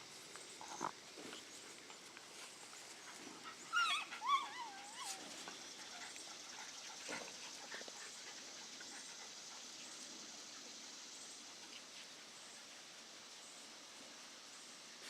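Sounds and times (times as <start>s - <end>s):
faint rustles: 0.0s - 15.0s
puppy whining: 3.5s - 6.2s.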